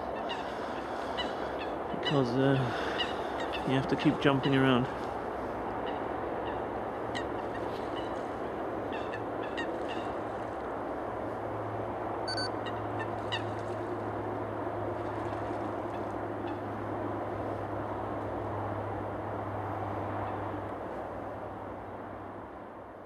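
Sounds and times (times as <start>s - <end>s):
waterfowl calling: 0.0s - 4.9s, 5.8s - 8.2s, 8.9s - 10.2s
low hum: 12.3s - 12.6s.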